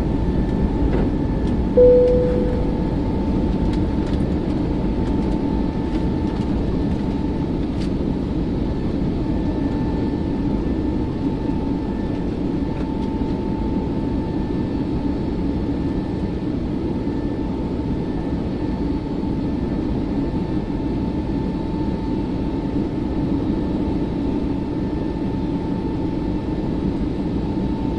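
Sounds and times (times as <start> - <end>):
high engine whine: 0.0 - 18.9.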